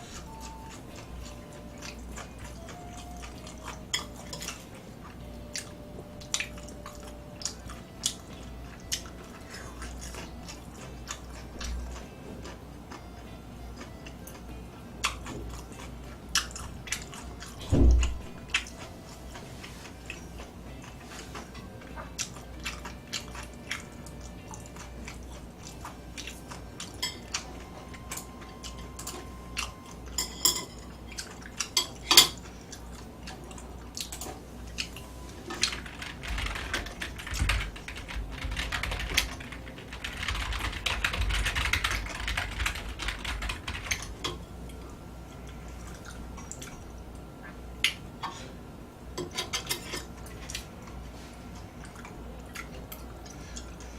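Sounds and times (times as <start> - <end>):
chewing: 0.0 - 13.1, 13.7 - 30.2, 30.8 - 35.8, 44.7 - 48.0, 49.8 - 53.9
heavy thump: 17.7 - 18.1
utensils clicking against dishes: 25.6 - 38.1, 49.2 - 50.6.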